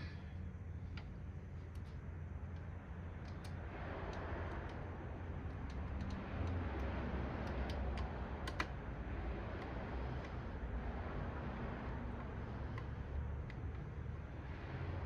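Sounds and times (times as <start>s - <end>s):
hands clicking and tapping parts: 5.4s - 8.8s.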